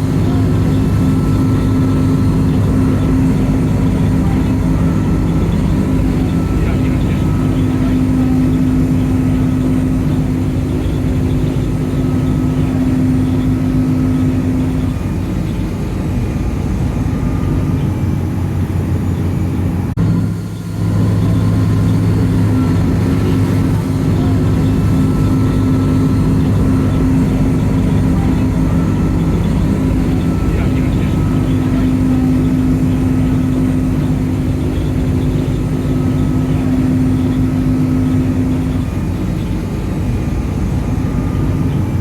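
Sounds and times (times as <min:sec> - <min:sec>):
ferry engine droning: 0:00.0 - 0:42.0.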